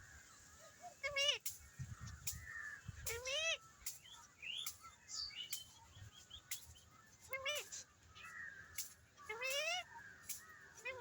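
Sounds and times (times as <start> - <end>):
faint parrot chattering: 3.1 - 3.6, 7.3 - 7.9, 9.2 - 10.0
parrot squawking: 9.3 - 9.9.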